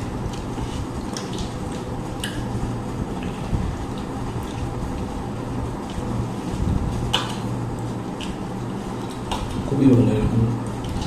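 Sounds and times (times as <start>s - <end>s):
steady low hum: 0.0s - 11.0s
wet eating smacks and clicks: 0.2s - 2.5s, 8.1s - 8.4s.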